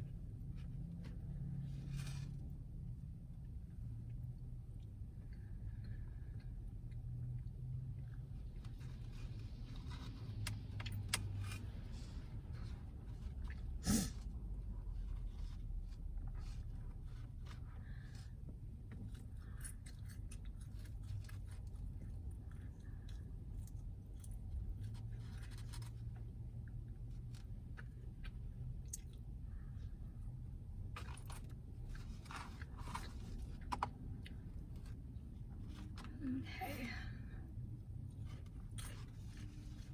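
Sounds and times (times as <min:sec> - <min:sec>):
low steady hum: 0:00.0 - 0:39.9
food packaging clicks and scrapes: 0:18.9 - 0:29.2, 0:30.8 - 0:36.1.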